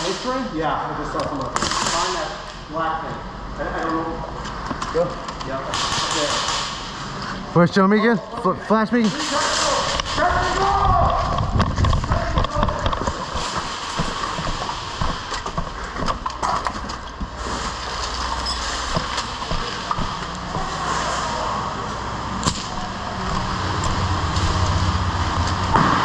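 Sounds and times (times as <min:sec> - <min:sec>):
airsoft guns firing: 0:05.7 - 0:06.9
steady rushing background: 0:09.9 - 0:17.1.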